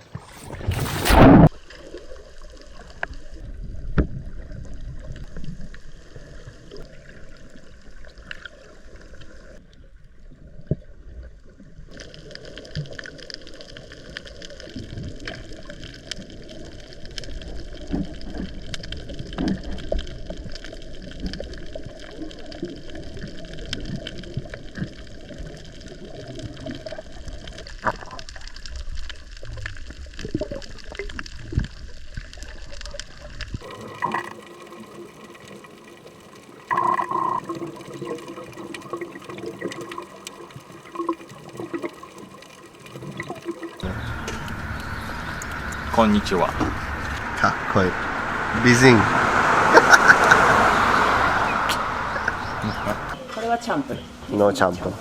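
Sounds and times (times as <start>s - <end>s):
water gurgling and sloshing: 0.0s - 55.0s
steady low hum: 43.8s - 49.2s
loud burst of noise: 43.8s - 50.5s.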